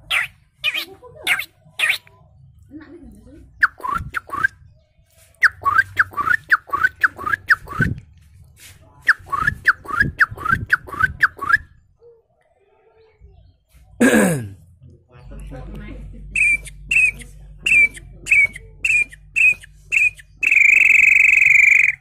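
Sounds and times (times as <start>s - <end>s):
man whistling bird call: 3.6s - 4.5s, 5.4s - 7.9s, 9.1s - 11.7s, 16.4s - 22.0s.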